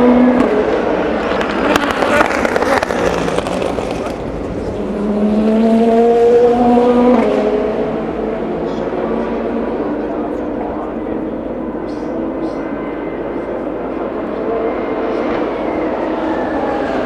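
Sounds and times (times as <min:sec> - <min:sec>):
race car engine accelerating: 0:00.0 - 0:17.0
engine pops and crackles: 0:00.4 - 0:05.1.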